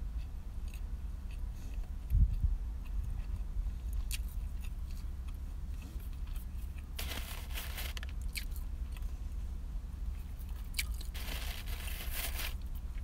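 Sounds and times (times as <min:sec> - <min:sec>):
steady low hum: 0:00.0 - 0:13.0
crunching on crisp toast: 0:06.1 - 0:09.1, 0:10.2 - 0:13.0.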